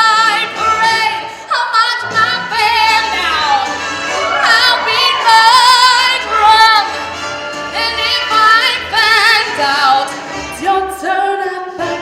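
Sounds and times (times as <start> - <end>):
woman singing show tune: 0.0 - 7.1
backing music: 0.0 - 12.0.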